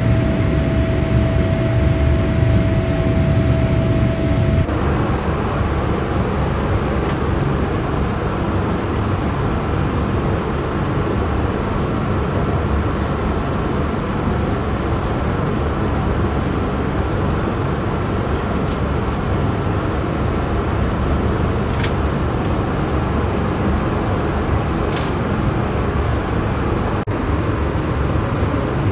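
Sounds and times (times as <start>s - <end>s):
airliner cabin noise: 0.0s - 28.9s.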